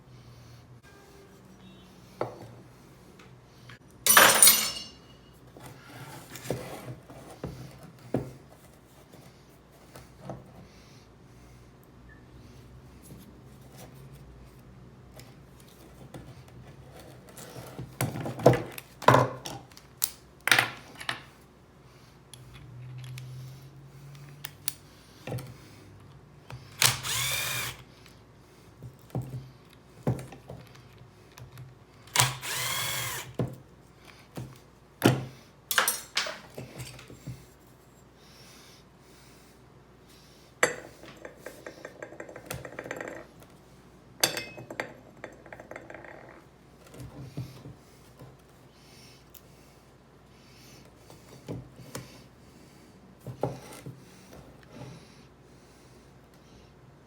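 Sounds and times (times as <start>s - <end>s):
metal parts clanking: 4.1s - 5.0s
power drill whirring: 26.8s - 27.8s, 32.2s - 33.4s.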